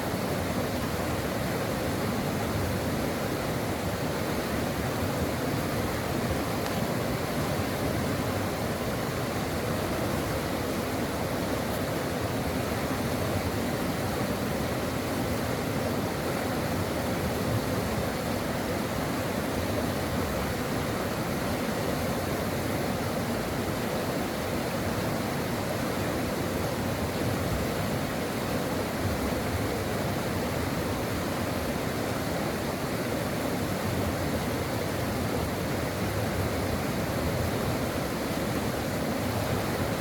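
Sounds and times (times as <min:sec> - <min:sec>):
brook flowing over rocks: 0:00.0 - 0:40.0.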